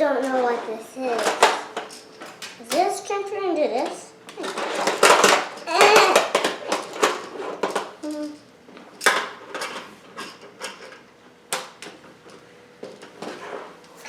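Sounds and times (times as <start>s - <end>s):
plastic pieces clicking: 4.3s - 8.4s.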